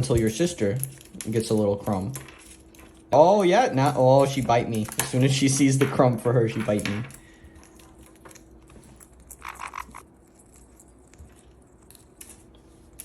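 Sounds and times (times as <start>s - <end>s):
parrots nibbling: 7.2s - 13.0s.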